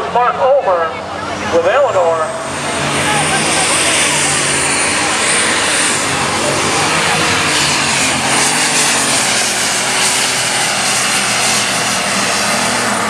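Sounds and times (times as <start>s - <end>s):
tractor engine at full throttle: 0.0s - 13.0s.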